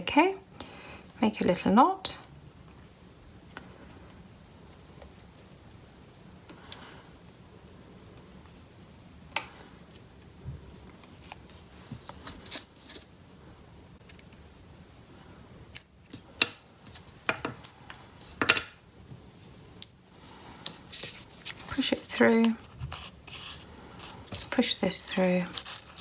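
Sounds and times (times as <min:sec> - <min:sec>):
paper rustling: 0:20.3 - 0:26.0
scissors snipping paper: 0:21.7 - 0:26.0.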